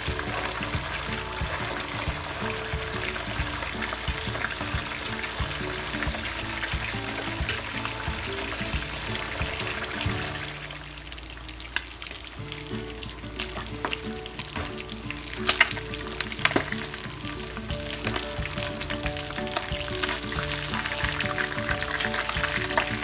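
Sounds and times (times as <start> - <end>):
fish sizzling in hot oil: 0.0 - 23.0.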